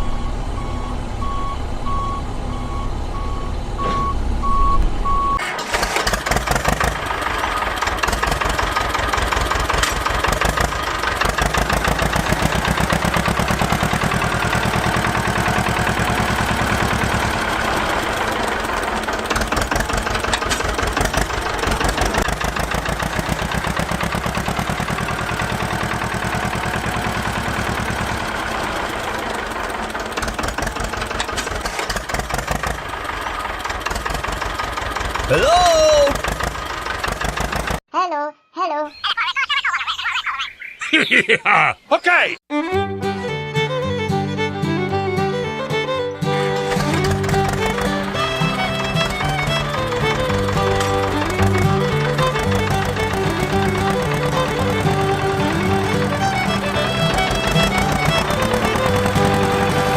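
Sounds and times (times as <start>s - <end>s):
reversing beeper: 0.0s - 5.4s
tractor engine knocking: 5.1s - 37.8s, 44.0s - 59.9s.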